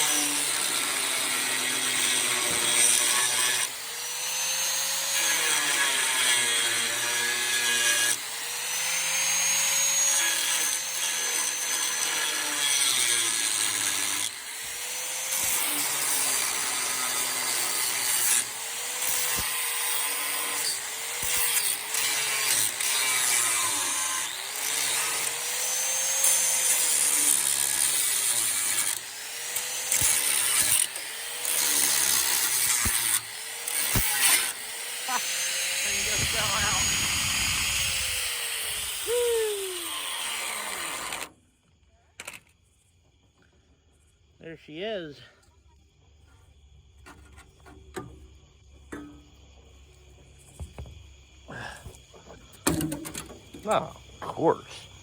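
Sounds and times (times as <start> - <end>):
power tool cutting: 0.0 - 41.4.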